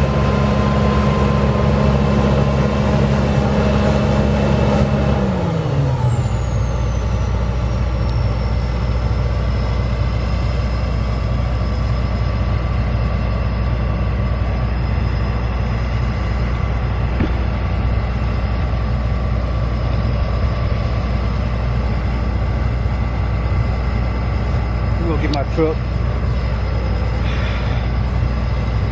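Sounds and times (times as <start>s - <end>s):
high whine falling in pitch: 0.0s - 12.5s
heavy farm machine engine: 0.0s - 28.9s.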